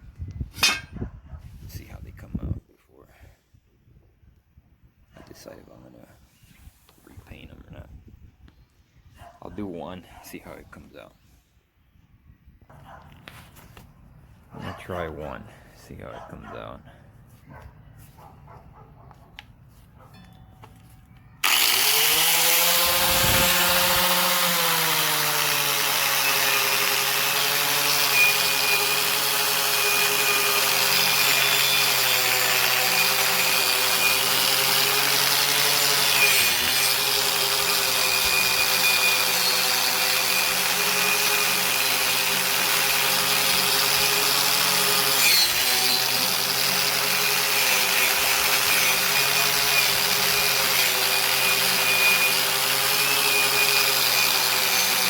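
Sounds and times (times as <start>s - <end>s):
power tool grinding rust off steel: 0.6s - 1.0s, 21.4s - 55.0s.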